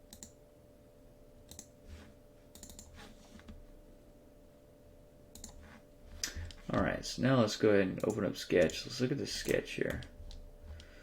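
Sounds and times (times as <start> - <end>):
faint electrical hum: 0.0 - 11.0
computer mouse and keyboard clicks: 1.5 - 1.7, 2.5 - 3.6, 5.3 - 5.6, 9.4 - 10.9.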